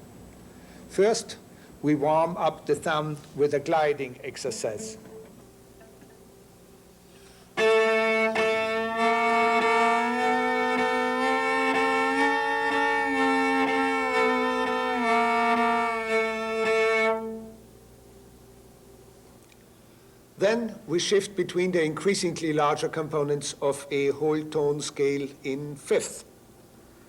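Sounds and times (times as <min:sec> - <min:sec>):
bowed cello note sliding: 0:07.6 - 0:17.6.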